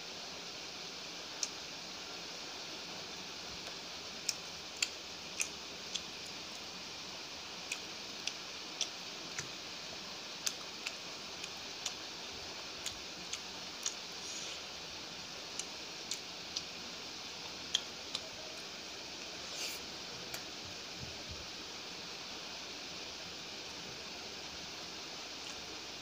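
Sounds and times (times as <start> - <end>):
steady hiss: 0.0 - 26.0
person chewing food: 4.2 - 6.1, 7.6 - 9.6, 10.4 - 14.8, 15.4 - 16.7.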